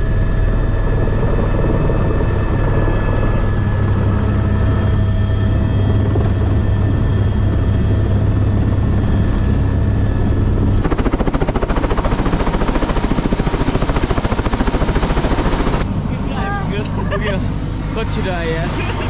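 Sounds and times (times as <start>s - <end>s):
helicopter engine hum: 0.0s - 19.0s
rotor blades beating: 10.8s - 19.0s.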